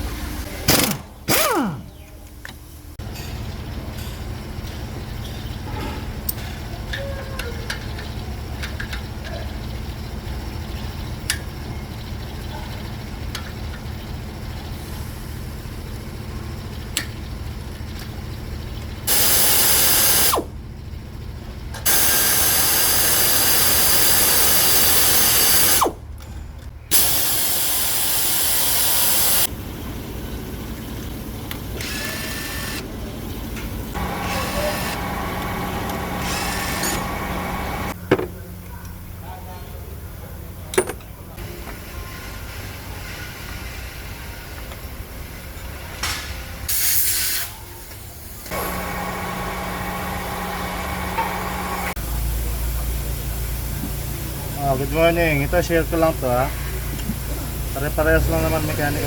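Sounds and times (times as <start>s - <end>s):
power tool running: 0.7s - 2.0s, 19.1s - 20.5s, 21.8s - 26.0s, 26.9s - 29.5s, 31.8s - 32.8s, 33.9s - 38.0s, 48.5s - 52.0s.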